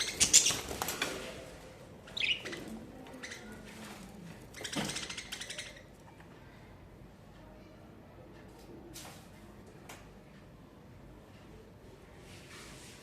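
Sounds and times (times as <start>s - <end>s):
wings flapping: 0.0s - 1.4s.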